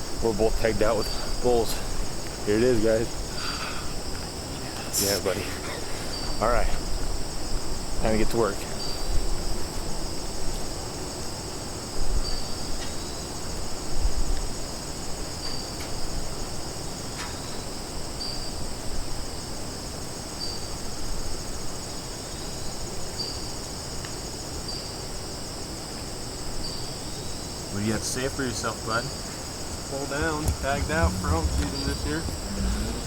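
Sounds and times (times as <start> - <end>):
crickets chirping: 0.0 - 33.0
low rumbling on microphone: 29.8 - 33.0.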